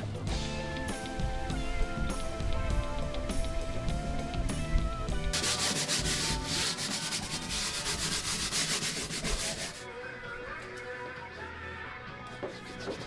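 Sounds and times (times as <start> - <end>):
faint background music: 0.0 - 13.0
scrubbing on a hard surface: 5.3 - 9.9, 12.4 - 13.0.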